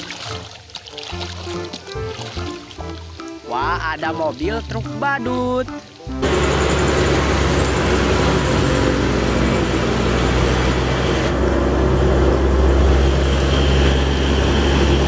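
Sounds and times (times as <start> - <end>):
truck engine running: 6.1 - 15.0.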